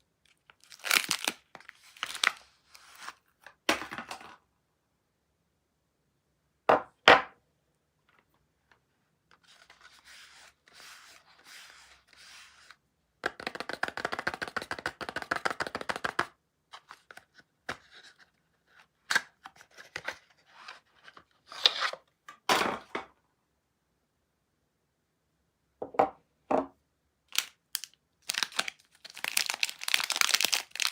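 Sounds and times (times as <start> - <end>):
soap packaging unwrapped: 0.3 - 3.4, 16.7 - 22.0, 27.3 - 30.9.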